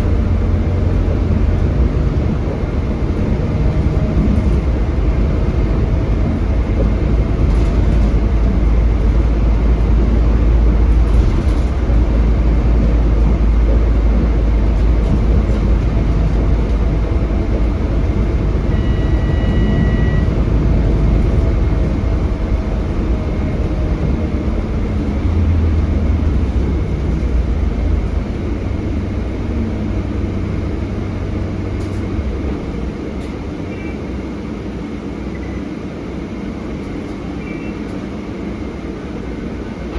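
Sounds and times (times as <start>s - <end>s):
bus engine and road rumble: 0.0s - 39.9s
high beep: 18.7s - 20.4s.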